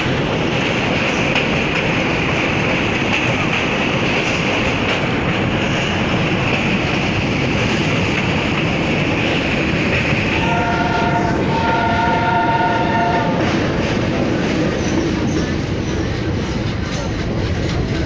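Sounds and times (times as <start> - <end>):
train rumbling on rails: 0.0 - 18.0
train horn blasts: 10.3 - 13.6.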